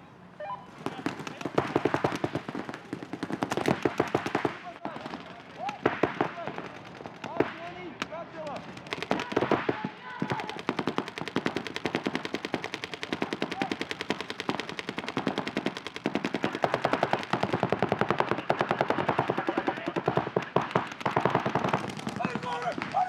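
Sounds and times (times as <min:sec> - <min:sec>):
paintball markers firing rapidly: 0:00.7 - 0:23.0.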